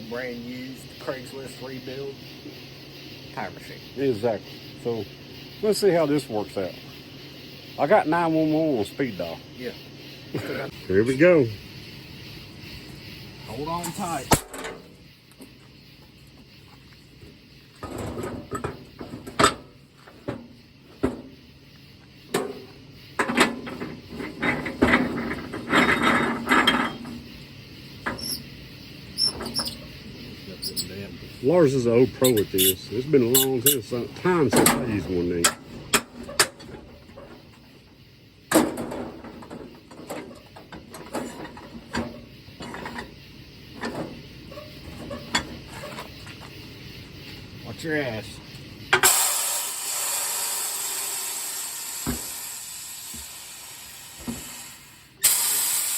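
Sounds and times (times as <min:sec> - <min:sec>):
tire changing machine clanking: 0:13.4 - 0:47.4, 0:48.5 - 0:55.9.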